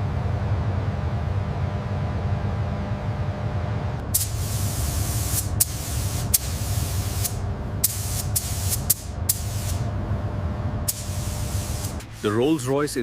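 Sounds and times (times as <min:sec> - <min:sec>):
steady low hum: 0:00.0 - 0:13.0
spray gun hissing: 0:04.0 - 0:09.9, 0:10.9 - 0:12.9.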